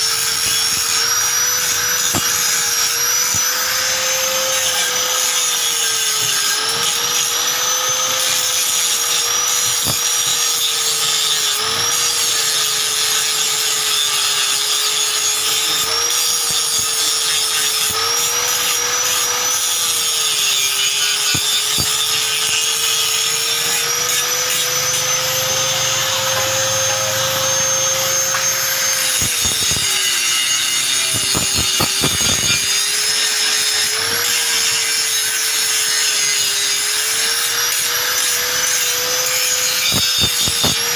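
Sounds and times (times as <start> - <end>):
electric tool rasping and scraping: 0.0 - 40.9.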